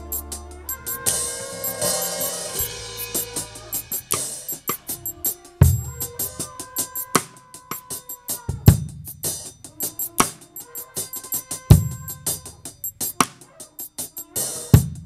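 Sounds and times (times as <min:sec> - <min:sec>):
gospel worship music: 0:00.0 - 0:04.5
heavy low drum strikes: 0:00.0 - 0:07.4, 0:08.5 - 0:09.5, 0:11.7 - 0:12.6
held instrument note: 0:00.0 - 0:08.6
drum kit hits and cymbals: 0:00.0 - 0:15.0.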